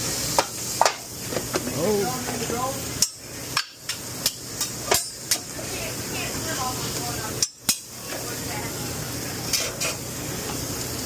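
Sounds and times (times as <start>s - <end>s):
steady grill hiss: 0.0s - 11.0s
metal spatula clacking on grill: 3.0s - 5.5s, 7.4s - 7.9s.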